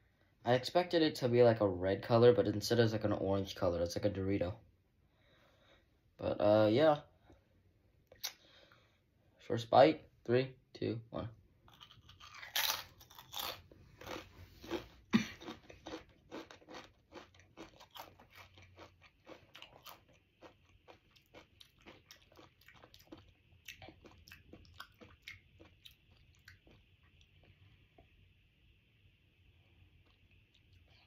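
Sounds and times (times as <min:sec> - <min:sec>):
person chewing crunchy chip: 0:11.7 - 0:27.6.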